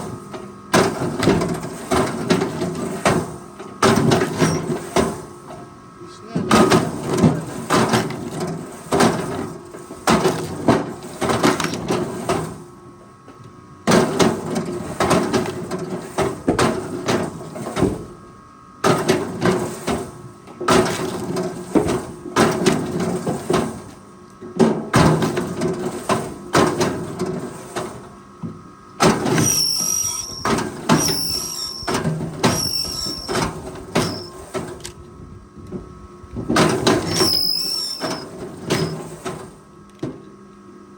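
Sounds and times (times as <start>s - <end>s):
short high squeal: 4.4s - 4.7s, 29.4s - 34.4s, 37.1s - 39.0s.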